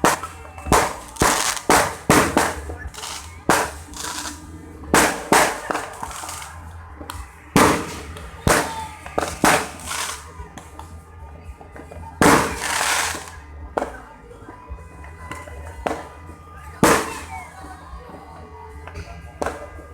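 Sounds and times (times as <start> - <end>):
fireworks bangs: 0.0 - 10.4, 12.2 - 14.0, 16.8 - 17.4
fireworks crackle: 0.0 - 10.4, 12.2 - 13.4, 16.8 - 17.5.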